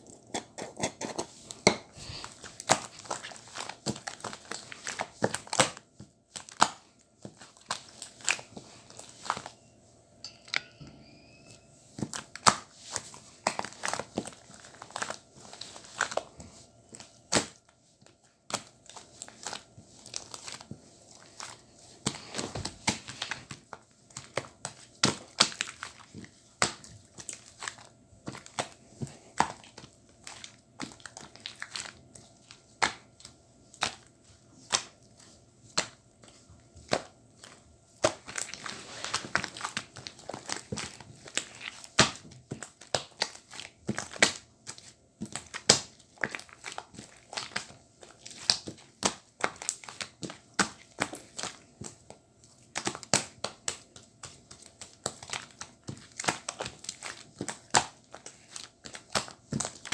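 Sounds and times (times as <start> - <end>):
faint wavering high sound: 9.4 - 12.2.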